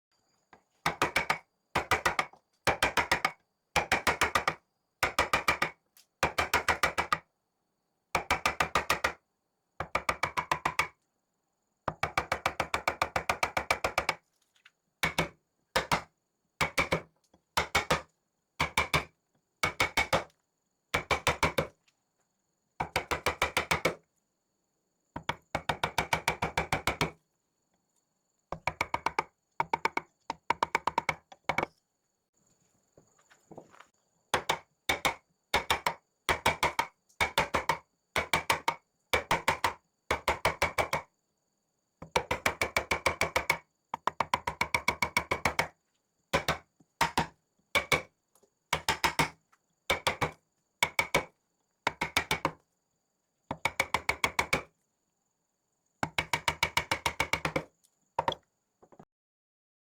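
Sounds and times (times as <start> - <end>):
rapid wooden knocks: 28.6 - 31.7, 34.4 - 41.0, 48.8 - 49.3, 51.9 - 52.6, 56.0 - 59.0.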